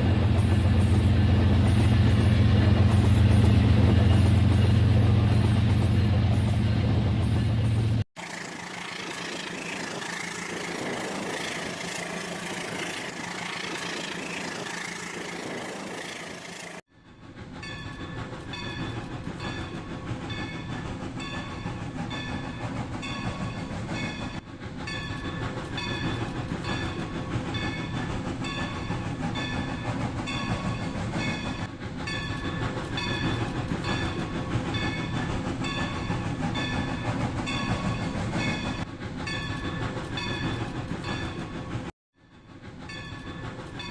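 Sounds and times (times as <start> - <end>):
electronic train sounds: 0.0 - 43.9
toy train motor and wheels clattering: 8.2 - 16.8.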